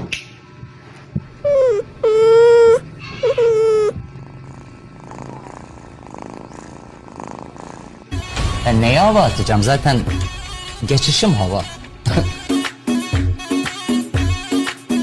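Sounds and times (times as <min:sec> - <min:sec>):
cat meowing: 0:01.4 - 0:04.0.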